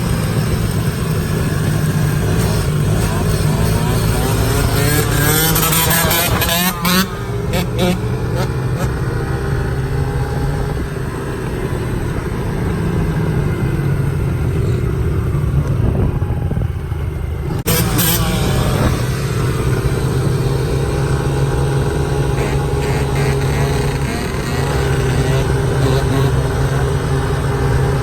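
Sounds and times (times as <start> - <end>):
vehicle engine humming: 0.0 - 28.0.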